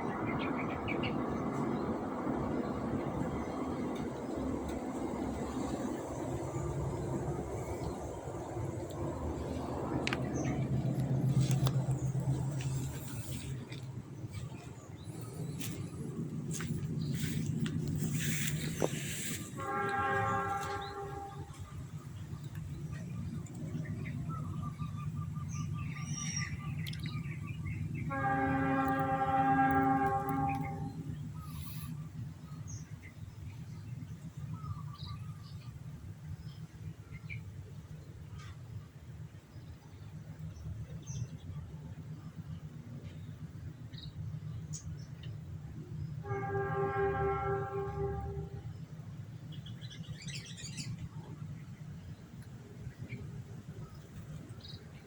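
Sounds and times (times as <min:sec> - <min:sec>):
low steady rumble: 0:00.0 - 0:55.0
horn long steady note: 0:00.1 - 0:24.0, 0:27.8 - 0:33.6, 0:45.8 - 0:49.4
horn held tone: 0:17.4 - 0:21.8, 0:28.1 - 0:32.0, 0:46.2 - 0:48.7.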